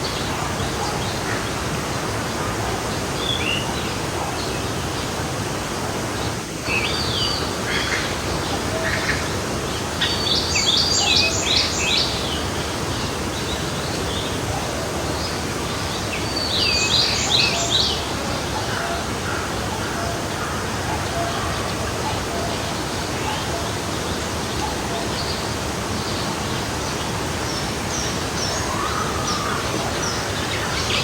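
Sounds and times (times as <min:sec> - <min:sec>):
forest stream flowing: 0:00.0 - 0:31.0
songbird singing: 0:06.6 - 0:31.0.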